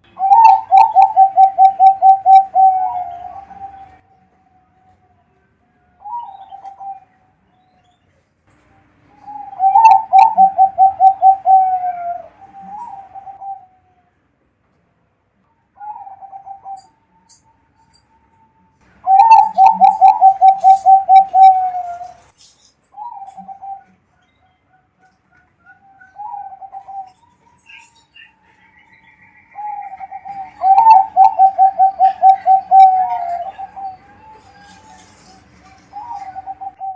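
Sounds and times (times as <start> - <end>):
dove cooing: 0.2 - 4.0, 6.0 - 7.1, 9.2 - 14.0, 15.8 - 16.9, 19.1 - 22.2, 23.0 - 24.0, 24.8 - 28.3, 29.5 - 36.9.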